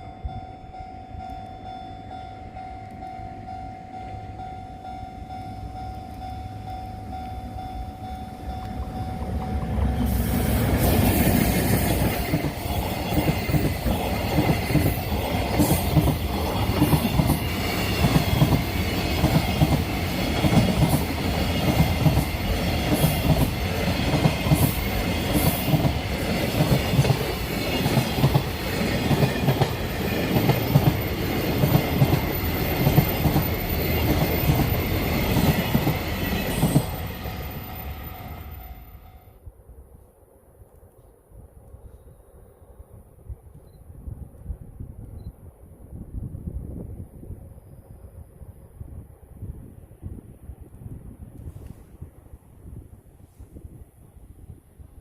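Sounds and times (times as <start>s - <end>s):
freight train passing: 0.0s - 39.8s
wheels clacking over rail joints: 8.3s - 37.7s.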